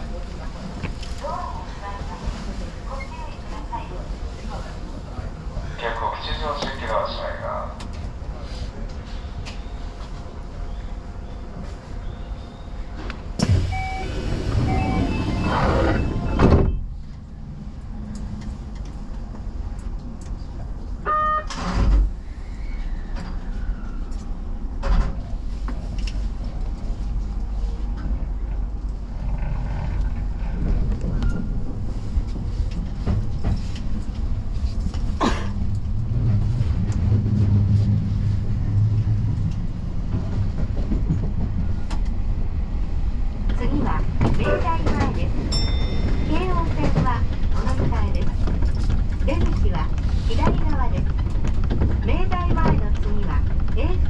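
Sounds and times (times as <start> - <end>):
train wheels rumbling on rails: 0.0 - 54.0
brief tone: 12.0 - 12.9, 13.7 - 16.8.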